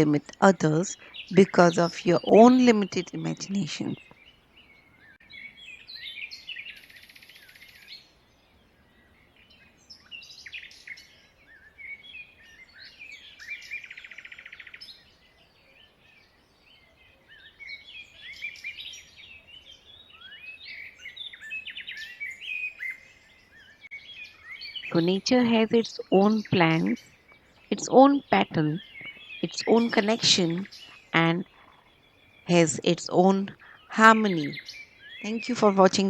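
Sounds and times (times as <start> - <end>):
birds chirping: 0.0 - 8.0, 8.6 - 36.0
buzzy bird trill: 24.6 - 27.1, 27.7 - 36.0.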